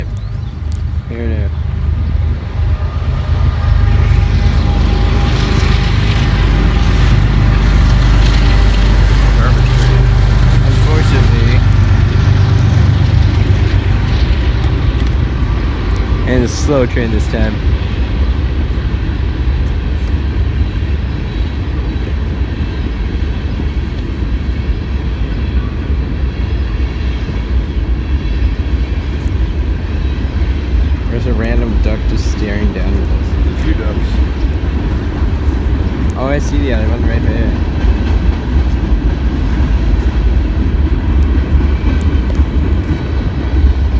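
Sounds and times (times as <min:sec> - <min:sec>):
faint clicks: 0:00.0 - 0:01.0
diesel locomotive engine drone: 0:00.0 - 0:43.9
freight train rumbling past: 0:00.0 - 0:43.9.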